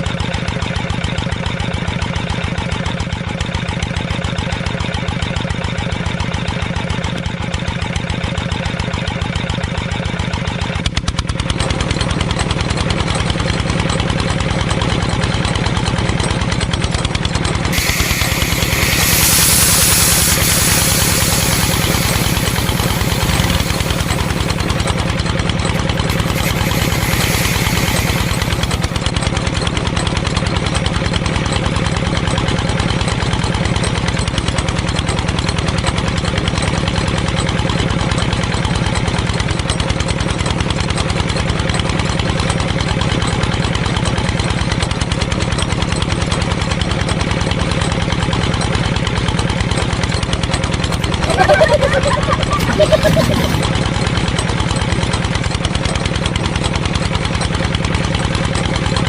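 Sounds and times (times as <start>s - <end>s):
small motor running: 17.4s - 29.2s, 50.9s - 53.7s.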